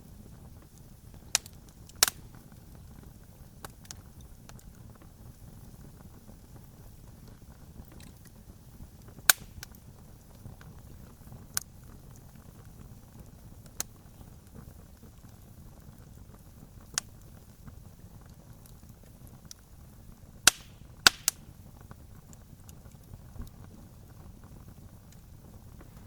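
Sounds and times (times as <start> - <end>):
campfire crackling: 0.0 - 26.0
fire popping: 0.0 - 26.0.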